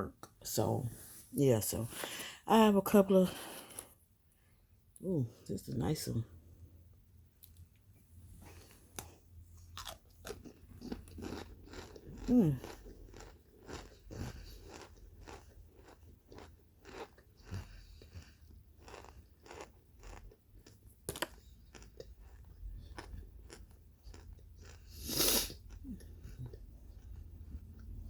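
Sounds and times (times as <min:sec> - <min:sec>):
chewing crunchy food: 0:07.4 - 0:28.0.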